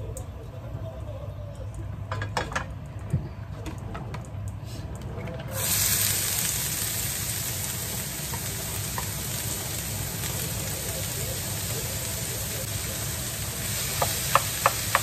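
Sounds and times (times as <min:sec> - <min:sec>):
rice sizzling in hot oil: 0:05.5 - 0:15.0.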